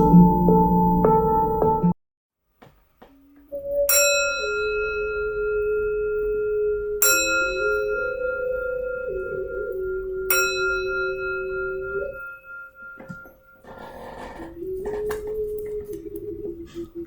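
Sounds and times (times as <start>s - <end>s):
singing bowl ringing: 3.5s - 15.9s.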